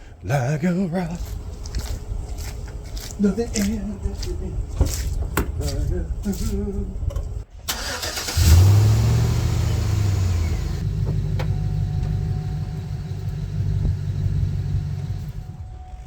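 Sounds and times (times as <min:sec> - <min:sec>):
engine starting and idling: 0:06.0 - 0:15.7.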